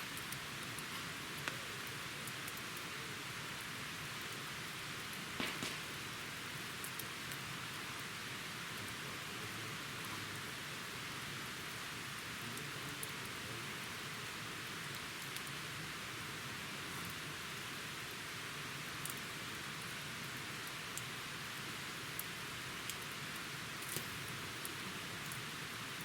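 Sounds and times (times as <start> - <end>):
campfire hissing: 0.0 - 26.0
fire crackling pops: 0.1 - 2.9, 3.6 - 8.1, 22.2 - 25.4.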